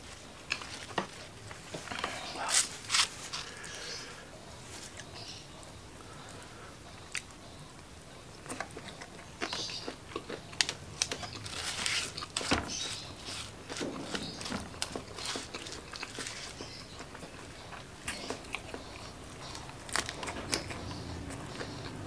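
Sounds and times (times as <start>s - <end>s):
chewing with crisp crunches: 4.8s - 22.0s.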